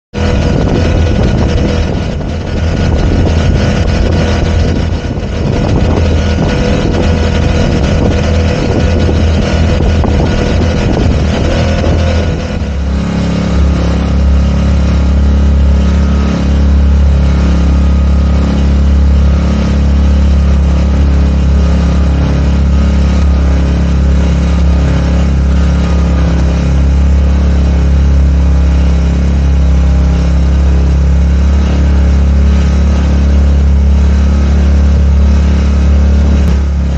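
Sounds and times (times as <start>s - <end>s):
outboard motor running: 0.1s - 36.9s.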